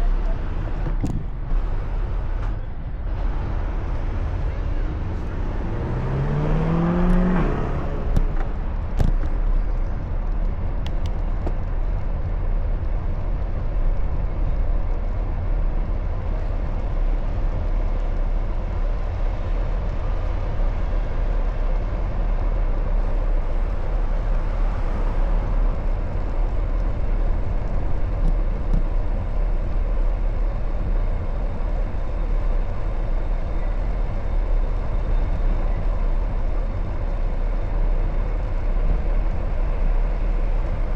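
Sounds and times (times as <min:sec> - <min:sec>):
road traffic: 0:00.0 - 0:40.9
wind rumble on microphone: 0:00.0 - 0:40.9
vehicle engine rising in pitch: 0:01.4 - 0:10.2.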